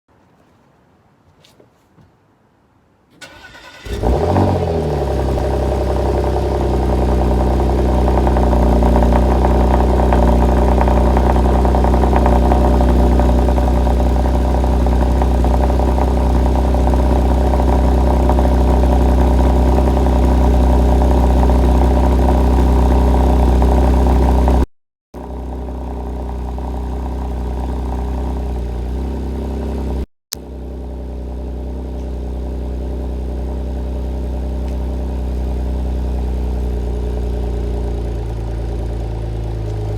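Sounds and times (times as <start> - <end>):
car engine cranking: 3.1 - 20.2
car engine revving and idling: 3.4 - 39.9.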